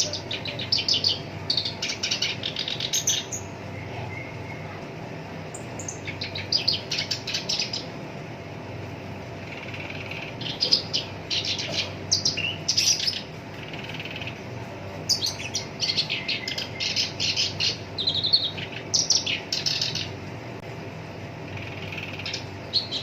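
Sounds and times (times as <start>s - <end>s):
warbler singing rough chattering notes: 0.0s - 4.8s, 5.4s - 8.0s, 9.4s - 20.2s, 21.4s - 23.0s.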